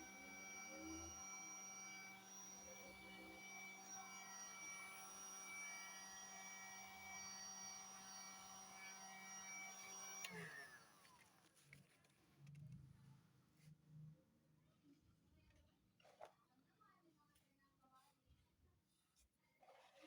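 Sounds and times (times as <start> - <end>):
fan winding down: 0.0 - 10.8
heat gun motor hum and whine: 0.0 - 11.4.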